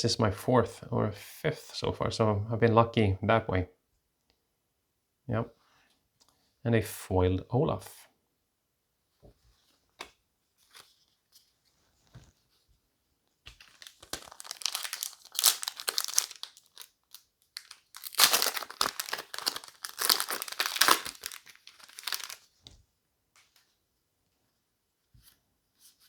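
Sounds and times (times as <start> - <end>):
foil wrapper crinkling: 13.6 - 22.5.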